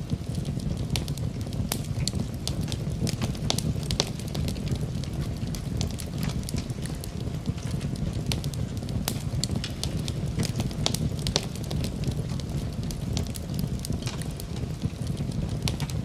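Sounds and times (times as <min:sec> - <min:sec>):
fire crackling and popping: 0:00.0 - 0:16.0
low rumble of fire: 0:00.0 - 0:16.0.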